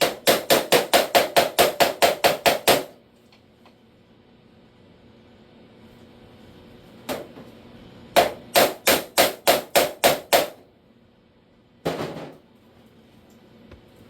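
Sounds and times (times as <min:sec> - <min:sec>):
hammer striking sheet metal: 0:00.0 - 0:03.0, 0:08.2 - 0:10.6.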